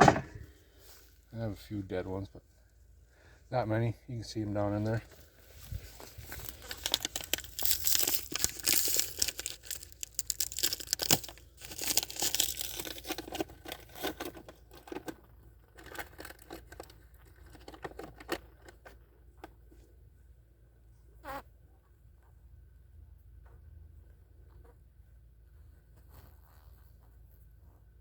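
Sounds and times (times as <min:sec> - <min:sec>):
crinkling rustling with crackles: 0:04.7 - 0:19.8.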